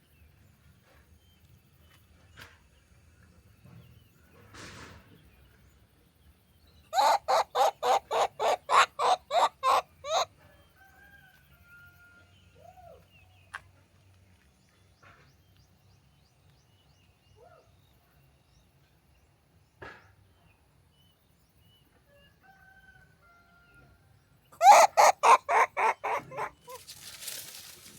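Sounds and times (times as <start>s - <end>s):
hen clucking: 7.0s - 10.3s, 24.6s - 27.9s.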